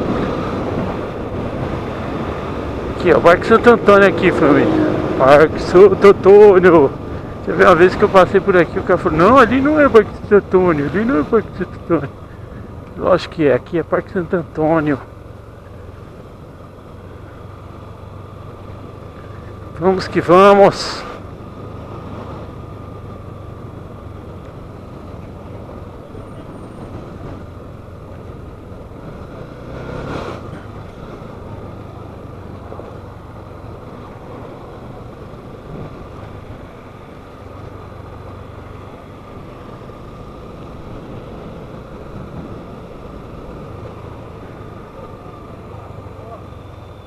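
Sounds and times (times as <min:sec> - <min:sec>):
motorcycle engine hum: 0:00.0 - 0:47.0
road and wind noise: 0:00.0 - 0:47.0
vehicle passing: 0:00.0 - 0:47.0.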